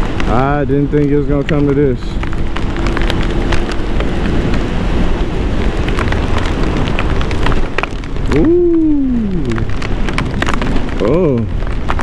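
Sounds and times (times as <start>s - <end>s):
heavy rain striking helmet: 0.0s - 12.0s
wind noise: 0.0s - 12.0s.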